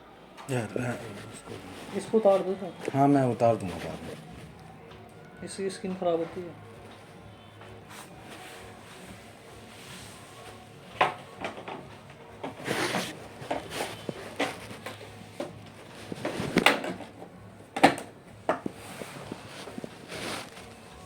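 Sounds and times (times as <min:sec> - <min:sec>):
scraping rustles: 0:00.7 - 0:04.6, 0:11.3 - 0:17.4, 0:18.6 - 0:21.0.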